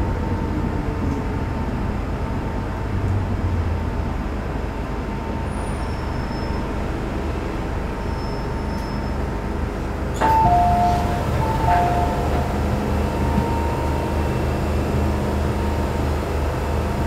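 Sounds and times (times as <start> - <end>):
two-note ding-dong chime: 10.2 - 12.5.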